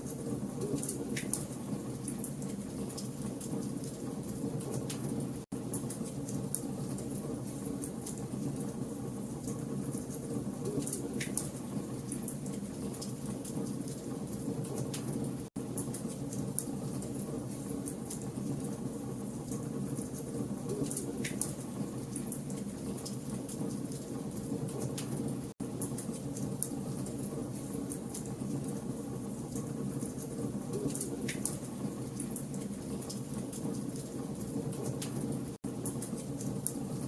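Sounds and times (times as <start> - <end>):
fire pops and snaps: 34.8 - 36.8.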